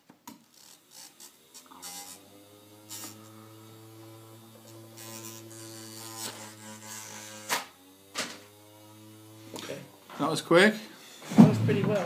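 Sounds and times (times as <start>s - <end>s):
small electric motor buzzing: 0.3s - 11.4s
sharp knocks: 11.3s - 12.0s.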